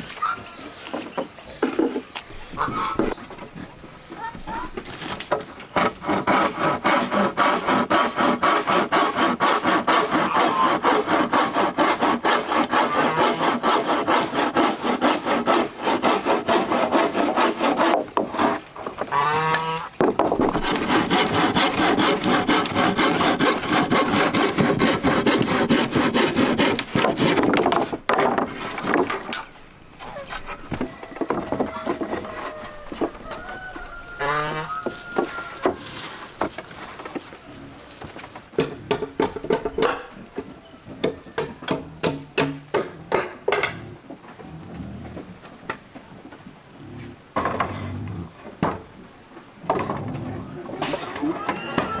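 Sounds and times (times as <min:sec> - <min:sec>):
hand saw cutting wood: 0:05.7 - 0:29.4.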